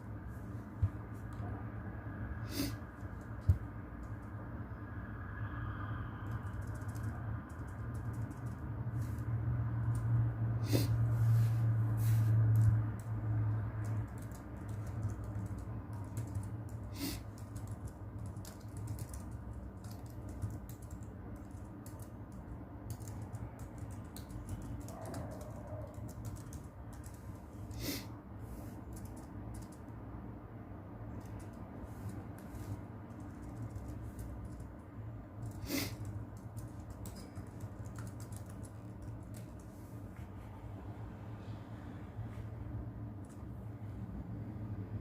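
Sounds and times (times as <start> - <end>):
low noise rumble: 0.0 - 45.0
keyboard typing: 6.2 - 10.3, 12.5 - 27.8, 28.7 - 30.0, 31.0 - 39.8.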